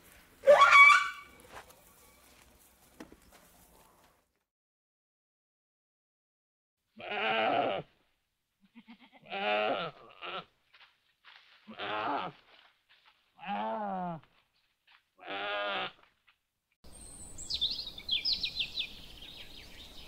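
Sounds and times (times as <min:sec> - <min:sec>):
animal bleating: 0:07.0 - 0:07.9, 0:08.6 - 0:10.5, 0:11.6 - 0:12.4, 0:13.4 - 0:14.2, 0:15.2 - 0:16.1.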